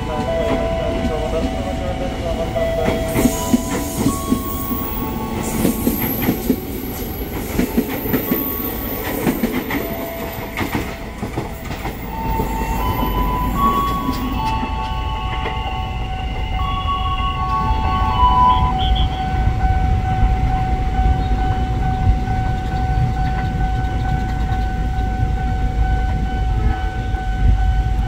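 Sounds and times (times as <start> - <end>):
wheels clacking over rail joints: 0.0 - 15.6
low train rumble: 0.0 - 28.0
train wheels squealing: 2.8 - 10.8, 11.6 - 19.3.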